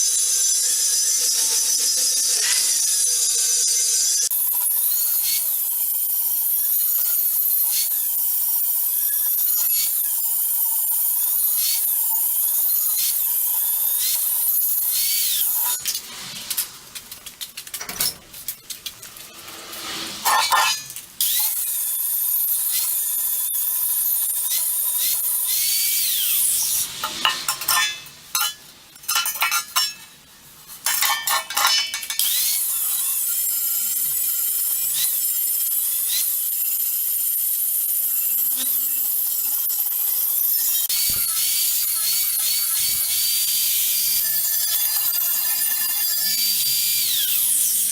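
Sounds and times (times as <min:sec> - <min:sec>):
hissing tool noise: 0:00.0 - 0:16.8, 0:18.9 - 0:30.0, 0:30.7 - 0:47.9
metal parts clinking and scraping: 0:15.6 - 0:19.4, 0:20.2 - 0:21.7, 0:27.0 - 0:30.1, 0:30.7 - 0:32.6.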